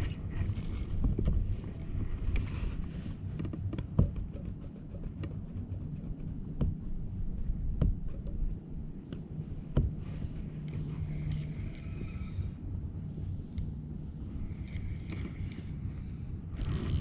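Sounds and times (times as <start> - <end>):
wind rumbling on microphone: 0.0 - 4.4.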